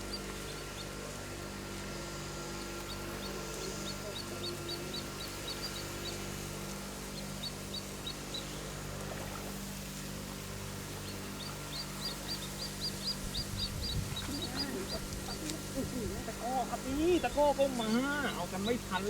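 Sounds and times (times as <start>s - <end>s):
steady low hum: 0.0s - 19.0s
small bird chirping: 2.4s - 8.7s, 10.9s - 16.4s.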